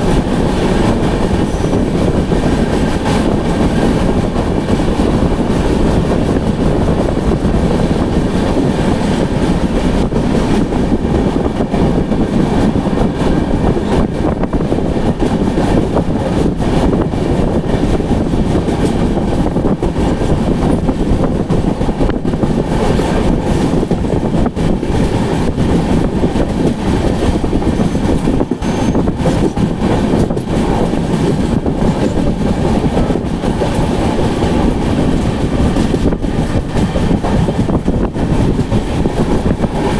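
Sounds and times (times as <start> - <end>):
train wheels clacking: 0.0 - 39.9
train wheels rumbling on rails: 0.0 - 39.9.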